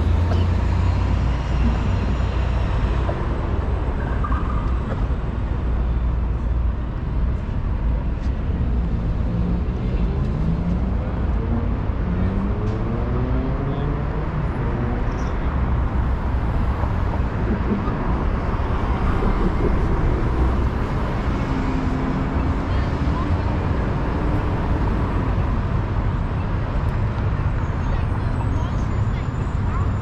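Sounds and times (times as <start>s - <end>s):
faint voices of passers-by: 0.0s - 30.0s
traffic rumble: 0.0s - 30.0s.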